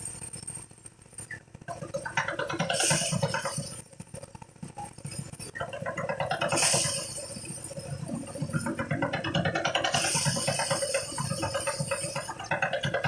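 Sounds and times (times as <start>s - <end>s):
threshing machine rattling: 8.2s - 13.0s.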